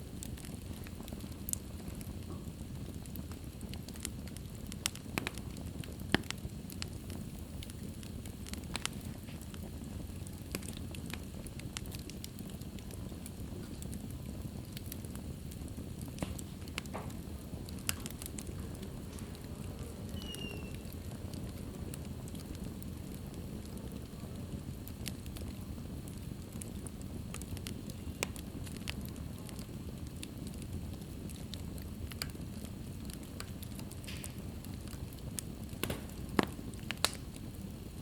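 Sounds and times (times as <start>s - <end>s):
fire crackles and pops: 0.0s - 38.0s
wood fire burning: 0.0s - 38.0s.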